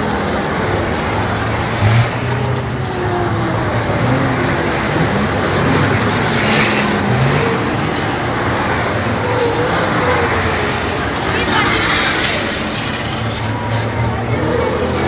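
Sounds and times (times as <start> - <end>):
racing truck diesel engines: 0.0 - 15.0.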